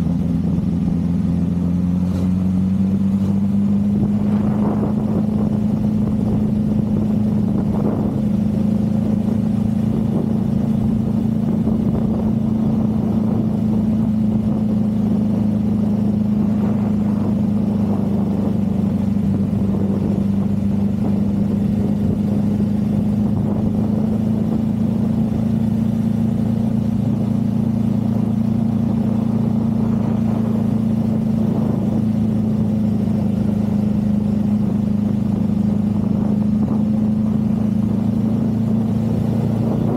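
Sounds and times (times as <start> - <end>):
motorcycle engine running: 0.0 - 39.9
road and wind rumble: 0.0 - 39.9.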